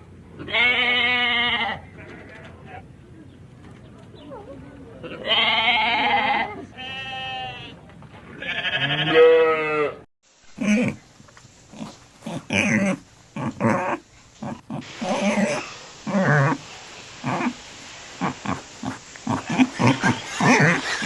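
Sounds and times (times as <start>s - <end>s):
sheep bleating: 0.4s - 2.8s, 5.0s - 7.8s, 8.4s - 10.0s.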